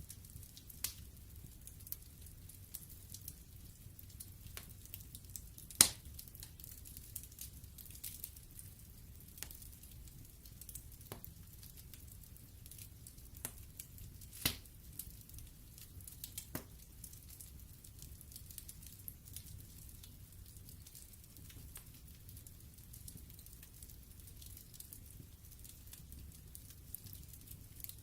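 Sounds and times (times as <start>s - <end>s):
log fire crackling: 0.0s - 28.0s.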